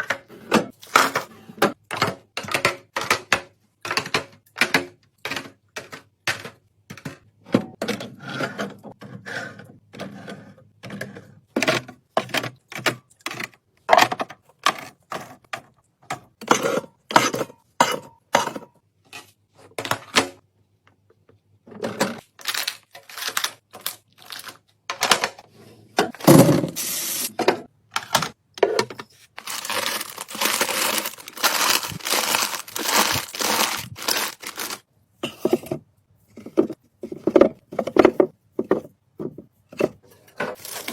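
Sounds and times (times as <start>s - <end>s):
plastic packaging crinkling and tearing: 22.3s - 24.6s, 29.3s - 34.9s, 40.6s - 40.9s
plastic containers set down: 26.0s - 35.8s.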